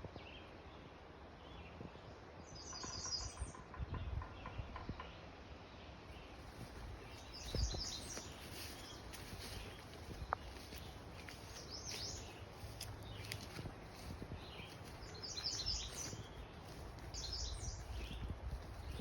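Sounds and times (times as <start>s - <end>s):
low rumble of breeze: 0.0s - 19.0s
songbirds singing: 1.4s - 19.0s.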